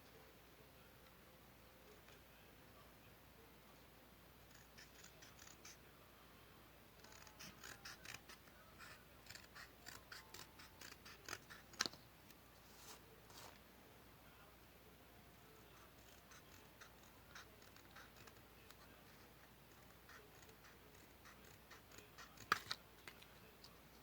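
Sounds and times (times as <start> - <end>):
scissors cutting paper: 4.5 - 5.8, 7.0 - 12.0, 15.8 - 22.8.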